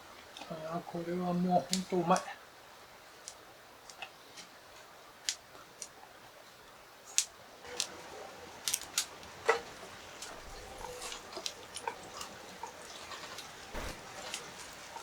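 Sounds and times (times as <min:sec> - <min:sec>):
short sharp clicks: 0:13.8 - 0:14.0.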